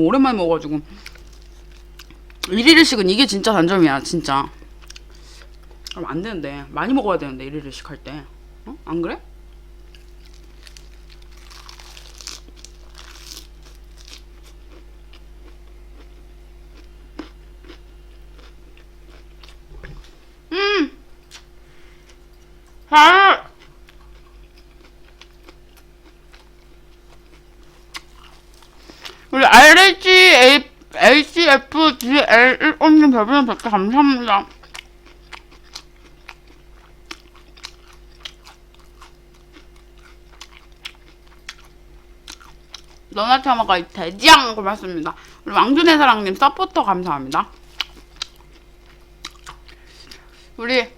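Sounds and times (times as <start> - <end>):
electrical hum: 0.0 - 50.9
crunchy chewing: 1.0 - 2.5, 9.5 - 19.7, 23.5 - 29.3, 34.4 - 43.1, 47.4 - 50.4.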